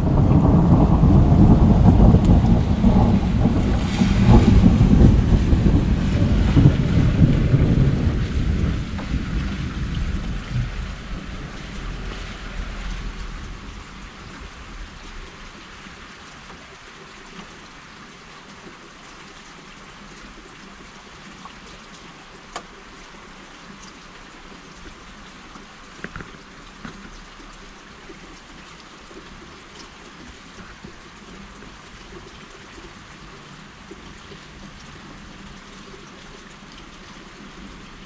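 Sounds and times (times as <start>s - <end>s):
thunder rumbling: 0.0s - 15.9s
rain falling on street and cars: 0.0s - 38.0s
water drips ticking: 0.4s - 38.0s.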